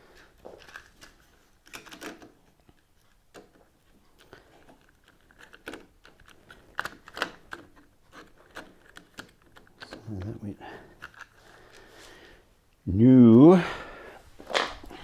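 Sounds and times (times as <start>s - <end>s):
light clicks and knocks of handling: 0.2s - 11.9s.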